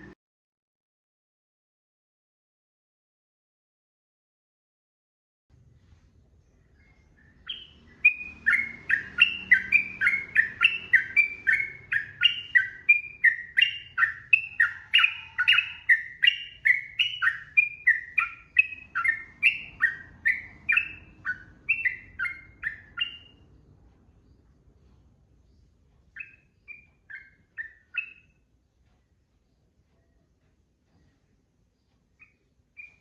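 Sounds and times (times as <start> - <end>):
bird singing whistled notes: 6.7 - 23.4, 26.1 - 28.4, 32.2 - 33.0.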